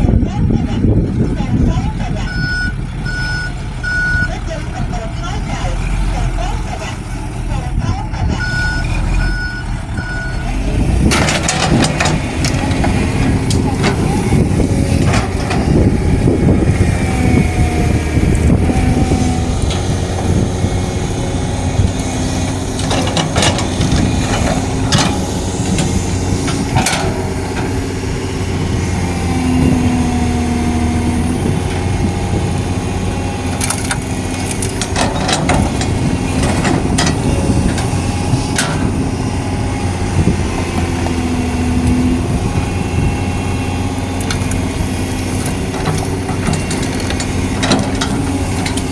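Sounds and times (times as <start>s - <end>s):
excavator diesel engine: 0.0s - 48.9s
hydraulic whine: 8.8s - 48.9s.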